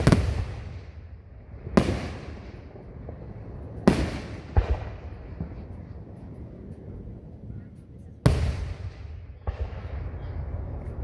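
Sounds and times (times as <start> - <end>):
fireworks booming: 0.0 - 7.4, 8.2 - 11.0
rolling echo: 0.0 - 11.0.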